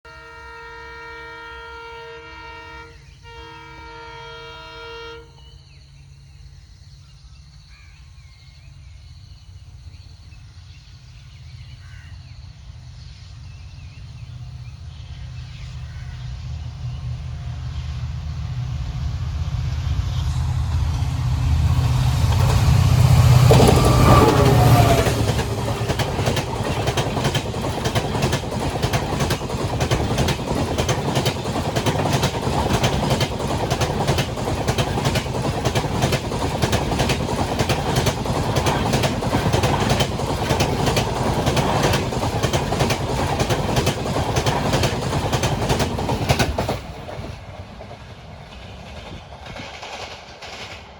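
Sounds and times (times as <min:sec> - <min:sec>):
locomotive engine hum: 0:12.5 - 0:50.9
wheels clacking over rail joints: 0:21.2 - 0:50.9.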